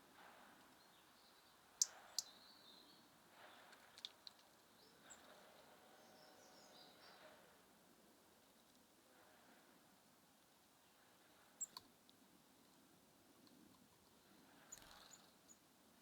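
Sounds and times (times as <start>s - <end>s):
songbirds calling: 0.5s - 7.6s, 11.6s - 11.9s, 14.1s - 15.7s.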